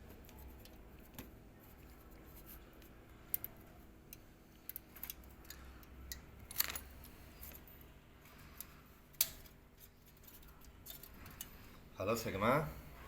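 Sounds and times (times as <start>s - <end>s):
metallic clicks and taps: 8.6s - 9.5s.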